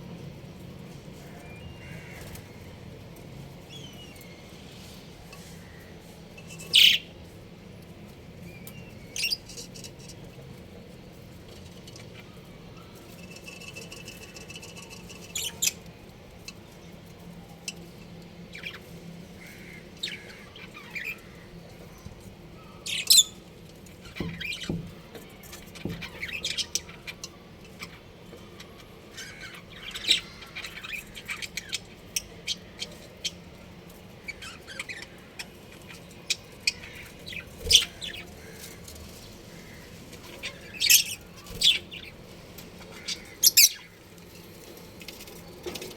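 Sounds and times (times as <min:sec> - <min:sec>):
budgerigars chirping: 0:06.6 - 0:07.2, 0:22.8 - 0:23.4, 0:28.6 - 0:33.4, 0:34.3 - 0:38.7, 0:39.4 - 0:42.1, 0:42.8 - 0:44.0.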